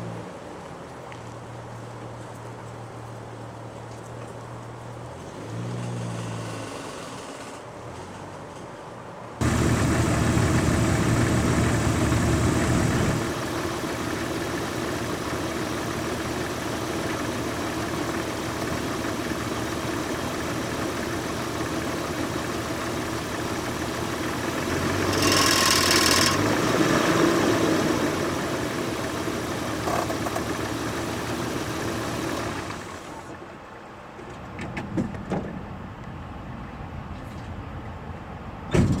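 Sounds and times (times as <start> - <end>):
car engine running: 9.4 - 33.4.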